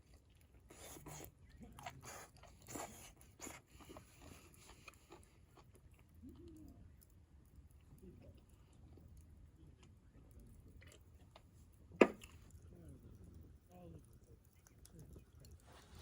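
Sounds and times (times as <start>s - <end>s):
faint chewing: 0.0s - 16.0s.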